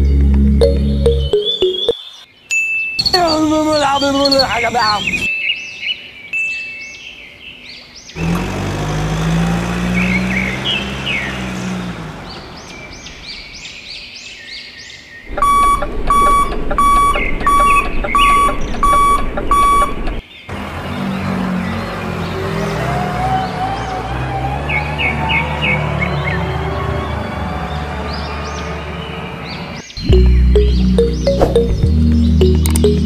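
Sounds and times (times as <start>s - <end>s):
birds chirping: 0.0s - 33.0s
electronic beeping: 0.6s - 2.2s, 15.3s - 20.2s, 30.0s - 33.0s.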